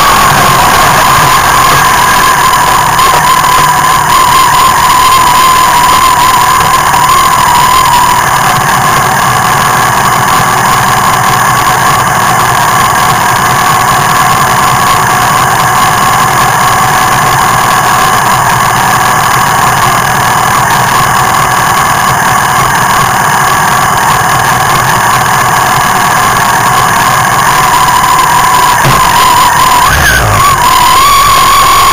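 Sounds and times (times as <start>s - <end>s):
motorcycle engine idling: 8.2s - 27.6s.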